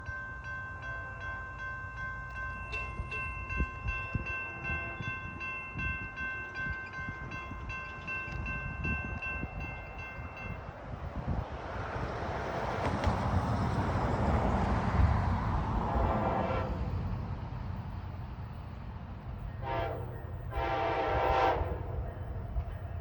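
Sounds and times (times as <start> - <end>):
crossing bell ringing: 0.0 - 10.8.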